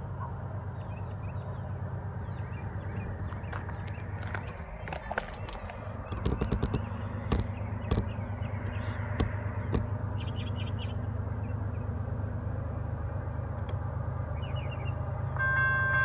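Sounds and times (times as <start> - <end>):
distant diesel locomotive rumble: 0.0 - 16.0
insects chirping: 0.0 - 16.0
footsteps on gravel: 3.2 - 8.1.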